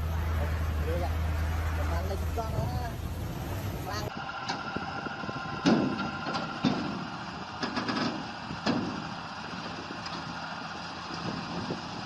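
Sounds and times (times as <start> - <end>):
vehicle engine running: 0.0 - 12.0
sharp knocks: 5.6 - 9.1.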